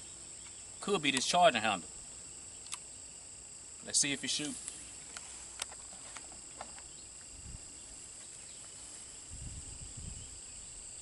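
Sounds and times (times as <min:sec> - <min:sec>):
crickets chirring: 0:00.0 - 0:11.0
faint sharp clicks: 0:02.6 - 0:02.9.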